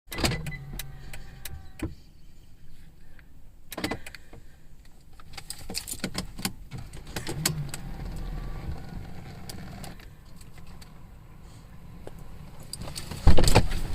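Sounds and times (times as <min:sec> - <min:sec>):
clicks and knocks around car: 0:12.1 - 0:13.9.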